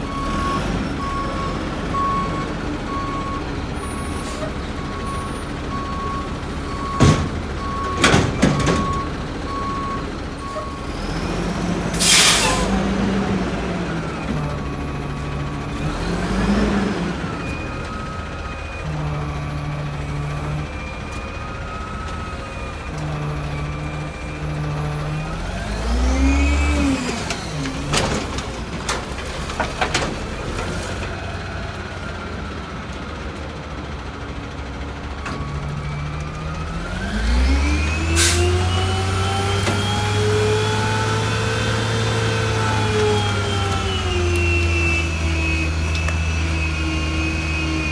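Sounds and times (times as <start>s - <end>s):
garbage truck engine idling and revving: 0.0s - 47.9s
reverse alarm beeping: 0.1s - 10.8s
air brake hissing: 11.9s - 12.8s, 38.2s - 38.6s.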